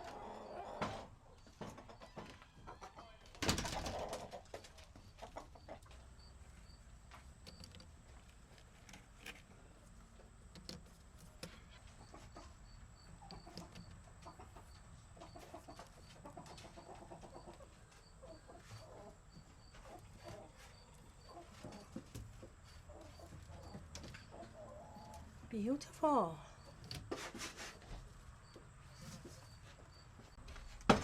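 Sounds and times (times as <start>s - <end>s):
chickens clucking: 0.0s - 7.3s, 9.6s - 25.5s.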